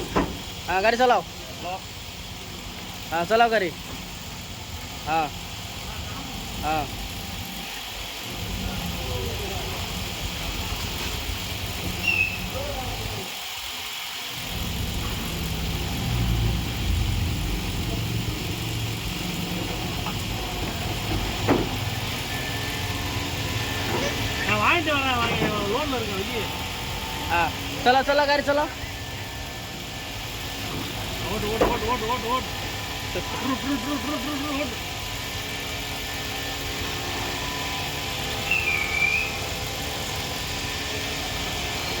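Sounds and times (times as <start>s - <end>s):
car engine humming: 0.0s - 13.3s, 14.3s - 37.8s
short high whistle-like tone: 12.0s - 12.5s, 38.4s - 39.5s.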